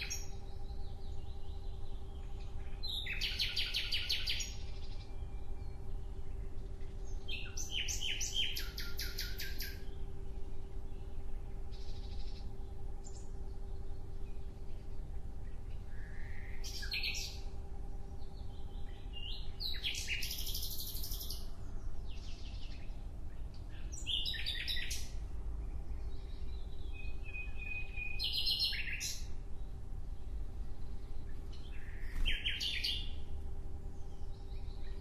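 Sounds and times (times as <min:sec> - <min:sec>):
small bird chirping: 0:00.0 - 0:17.5, 0:18.2 - 0:25.2, 0:25.9 - 0:29.3
steady low hum: 0:00.0 - 0:35.0.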